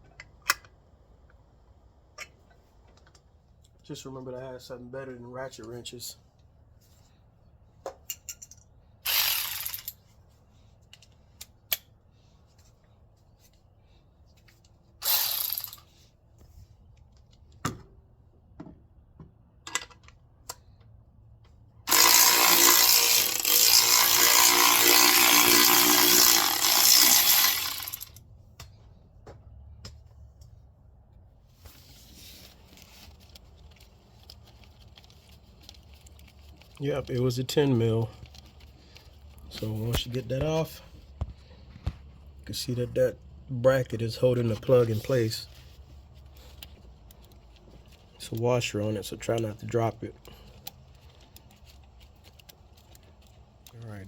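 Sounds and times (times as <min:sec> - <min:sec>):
power tool running: 0:09.1 - 0:09.9, 0:15.0 - 0:15.8, 0:21.9 - 0:28.2.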